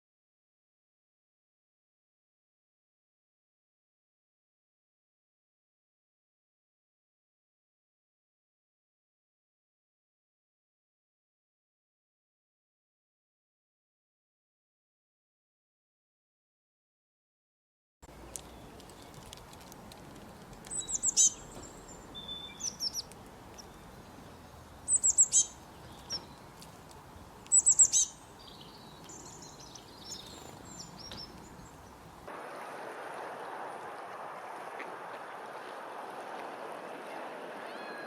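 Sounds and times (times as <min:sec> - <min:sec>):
birds chirping: 0:18.1 - 0:32.3, 0:36.8 - 0:38.0.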